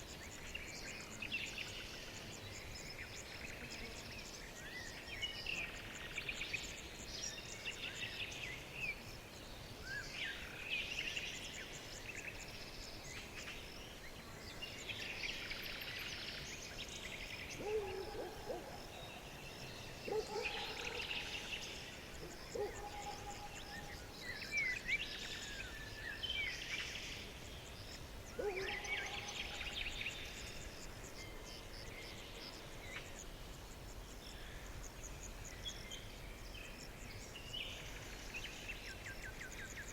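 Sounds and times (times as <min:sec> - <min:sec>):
birds twittering song: 0:00.0 - 0:39.9.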